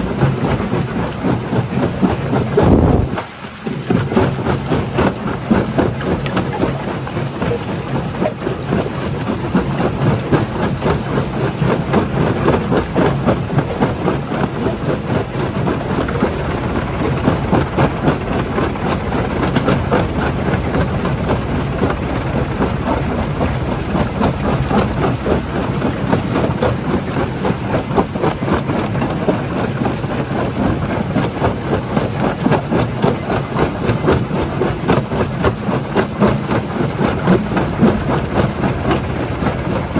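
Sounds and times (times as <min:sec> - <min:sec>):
engine drone: 0:00.0 - 0:39.9.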